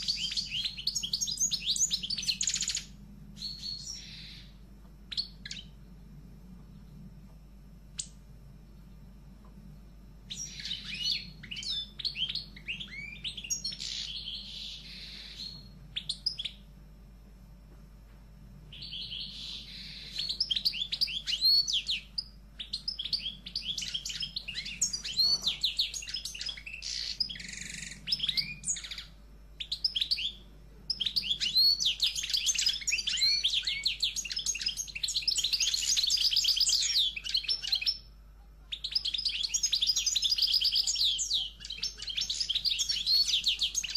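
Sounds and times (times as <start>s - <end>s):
songbirds chirping and trilling: 0.0s - 43.9s.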